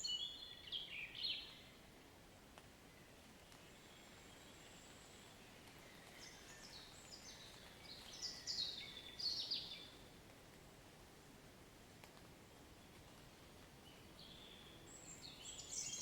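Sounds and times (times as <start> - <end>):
songbird singing: 0.0 - 1.9, 2.9 - 10.1, 13.8 - 16.0
faint rain hiss: 0.1 - 16.0.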